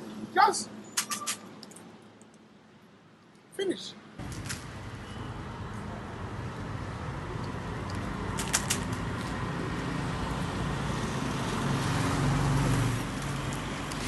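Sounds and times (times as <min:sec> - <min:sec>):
short sharp clicks: 0:01.0 - 0:01.8.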